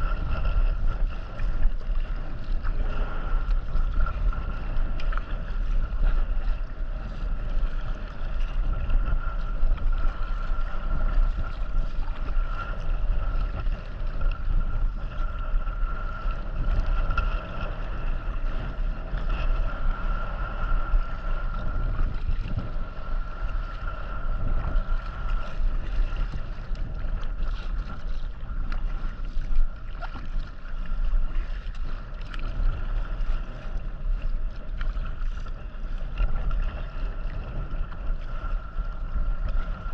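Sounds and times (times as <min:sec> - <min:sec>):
kayak paddling on water: 0:00.0 - 0:39.9
wind rumbling on microphone: 0:00.0 - 0:39.9.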